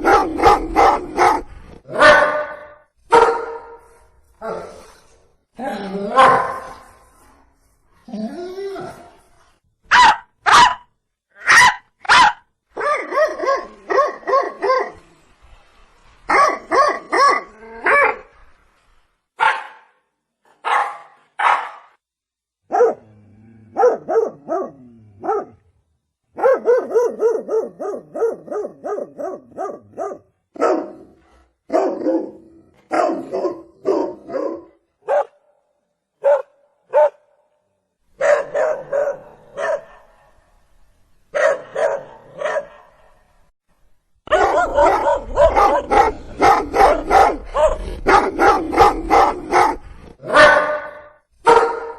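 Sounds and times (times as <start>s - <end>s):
dog barking: 0.0s - 3.9s, 6.2s - 6.8s, 9.9s - 15.0s, 16.3s - 18.2s, 19.4s - 20.0s, 20.6s - 22.0s, 22.7s - 23.1s, 23.7s - 25.6s, 26.4s - 35.5s, 36.2s - 37.4s, 38.2s - 40.4s, 41.3s - 43.2s, 44.3s - 51.9s.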